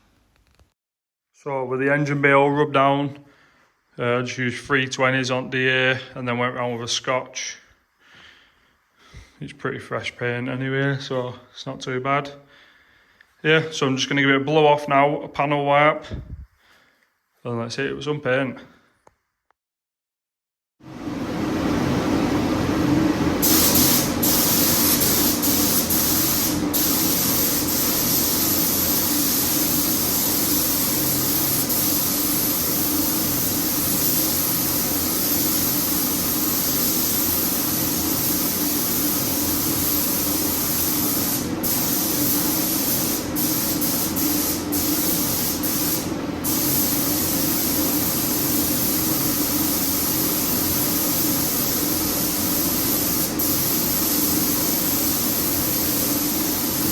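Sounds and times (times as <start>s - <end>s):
paint spray gun hissing: 23.4s - 56.9s.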